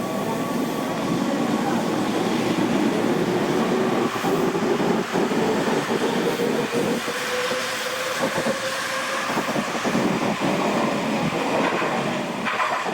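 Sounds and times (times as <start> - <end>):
train rumbling on rails: 0.0 - 12.9
wheels clicking over rail joints: 9.5 - 12.9.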